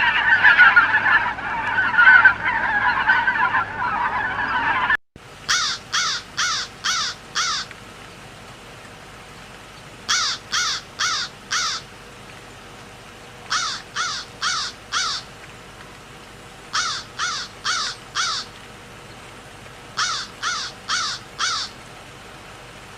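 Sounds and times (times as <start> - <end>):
faint steady hiss: 5.2 - 22.9
crow cawing: 5.5 - 7.7, 10.1 - 11.9, 13.5 - 15.3, 16.7 - 18.6, 20.0 - 21.8.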